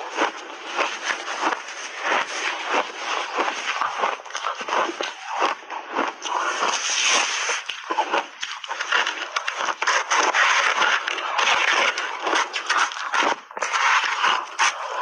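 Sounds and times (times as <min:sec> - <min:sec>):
chewing crunchy ice: 0:00.0 - 0:15.0.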